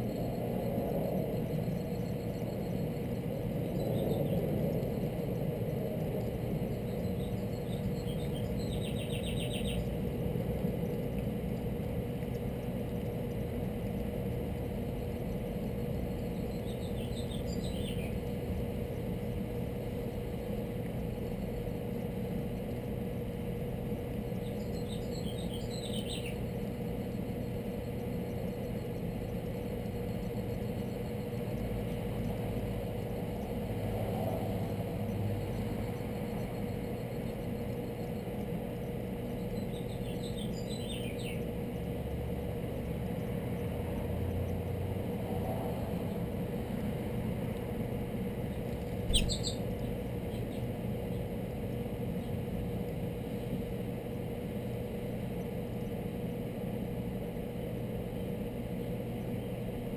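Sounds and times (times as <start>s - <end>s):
small bird chirping: 0.0s - 23.1s, 23.9s - 33.7s, 34.6s - 43.7s, 48.4s - 52.4s
steady low hum: 0.0s - 59.9s.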